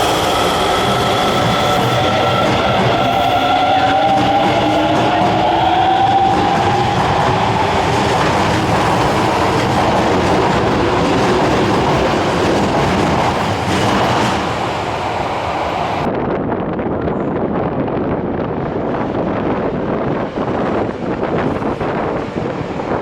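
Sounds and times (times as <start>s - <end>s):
subway train motor whine: 0.0s - 16.1s
wheels rumbling on rail: 0.0s - 23.0s.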